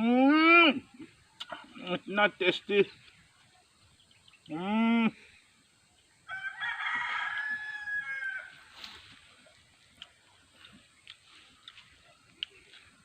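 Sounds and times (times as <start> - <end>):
rooster crowing: 6.3 - 8.7.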